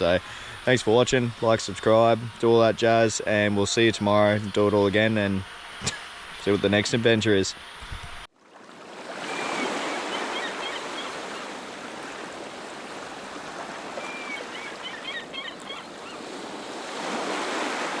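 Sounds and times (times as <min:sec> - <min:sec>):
ocean surf washing on shore: 0:08.6 - 0:18.0.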